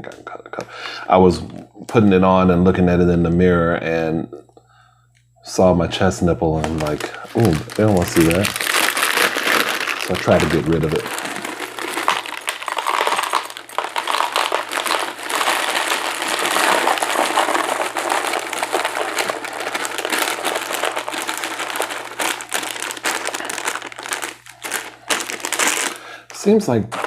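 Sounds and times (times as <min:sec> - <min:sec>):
plastic bag crinkling: 0:06.5 - 0:27.0
cereal pouring: 0:06.6 - 0:27.0.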